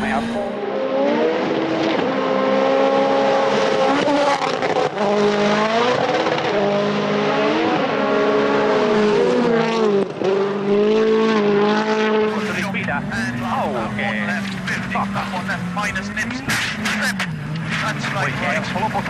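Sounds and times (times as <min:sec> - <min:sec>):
rally car engine racing: 0:00.0 - 0:19.0.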